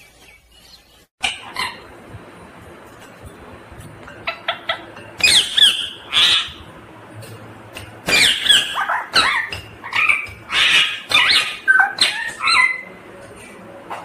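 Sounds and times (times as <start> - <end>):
parakeet screeching calls: 1.2 - 1.8, 4.5 - 6.6, 8.1 - 12.9.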